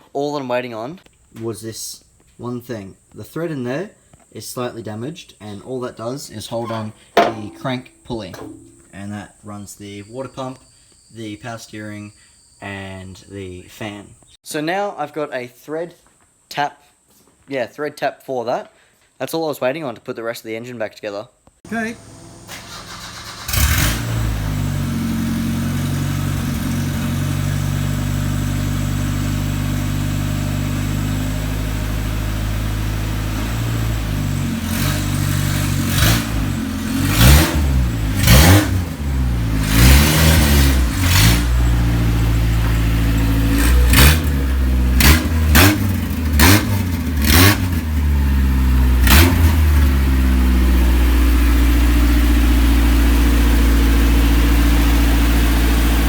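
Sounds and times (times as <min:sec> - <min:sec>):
petrol engine idling and revving: 0:21.7 - 0:56.0.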